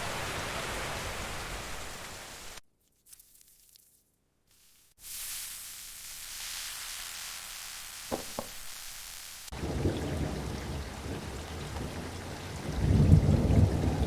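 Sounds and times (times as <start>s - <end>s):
heavy rain: 0.0s - 2.6s, 5.0s - 14.0s
steady hiss: 4.5s - 9.6s
low thunder rumble: 9.6s - 14.0s.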